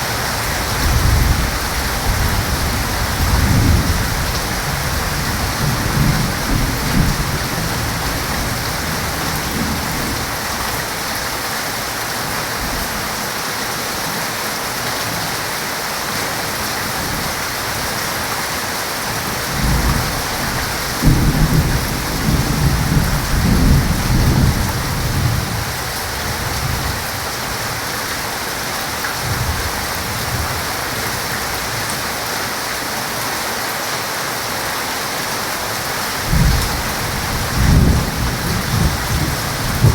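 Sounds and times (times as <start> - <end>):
heavy rain falling: 0.0 - 39.9
thunder rumbling: 0.2 - 10.6, 19.2 - 27.2, 36.2 - 39.9.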